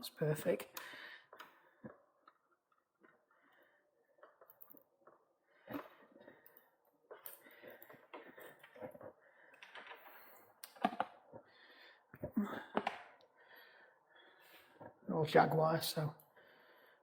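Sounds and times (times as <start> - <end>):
bicycle cable clicks and rustles: 4.2 - 11.4.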